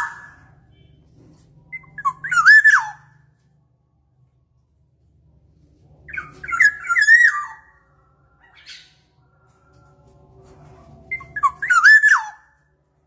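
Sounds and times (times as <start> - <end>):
oriole whistled calls: 1.7 - 3.2, 6.1 - 7.8, 11.1 - 12.6.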